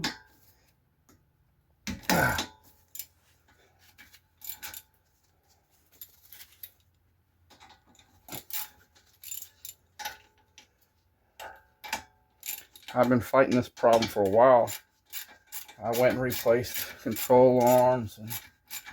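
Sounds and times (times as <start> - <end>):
metal tools clinking: 4.4 - 4.9, 11.4 - 18.9.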